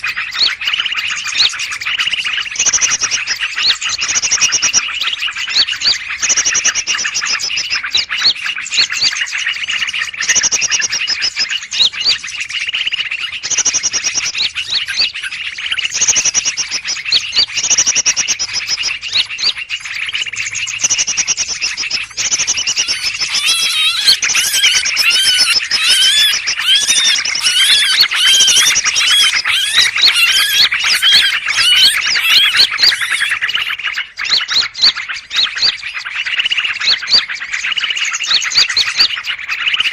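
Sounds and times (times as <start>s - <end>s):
many birds chattering and calling: 0.0s - 39.9s
fast swooping bird warbling: 22.4s - 33.8s.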